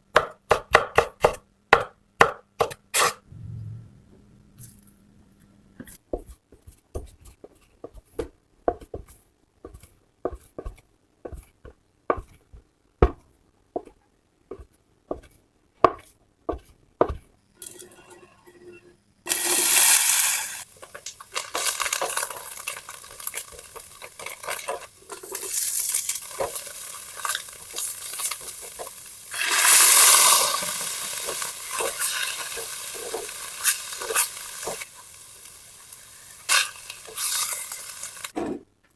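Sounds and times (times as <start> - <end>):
food sizzling in hot oil: 19.3 - 38.4.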